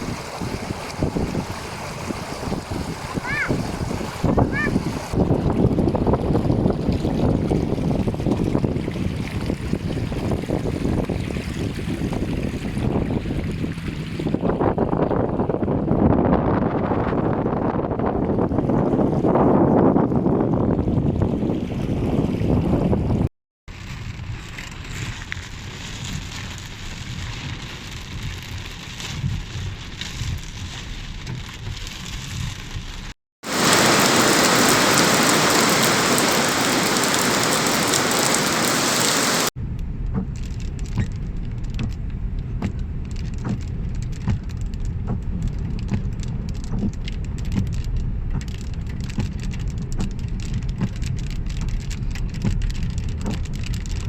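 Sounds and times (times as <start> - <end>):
rain falling: 23.9 - 54.0
heavy downpour hiss: 33.4 - 39.5
low rumble: 39.1 - 54.0.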